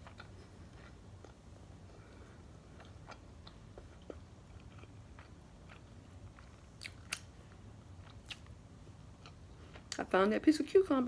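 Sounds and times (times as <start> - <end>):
chewing with mouth closed: 0.0 - 1.4, 2.2 - 8.6
low steady hum: 0.0 - 11.0.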